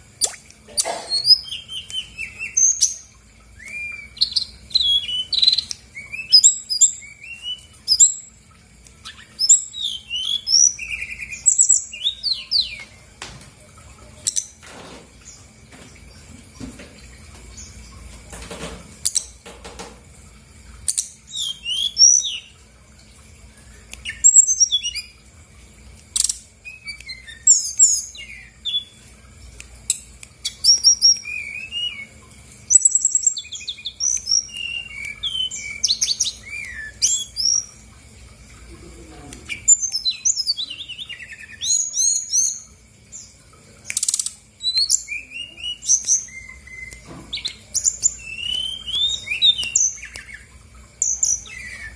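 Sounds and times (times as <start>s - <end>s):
bird singing chirps and trills: 0.2s - 13.1s, 20.8s - 22.7s, 23.5s - 25.3s, 26.1s - 29.1s, 29.9s - 37.8s, 39.4s - 51.9s.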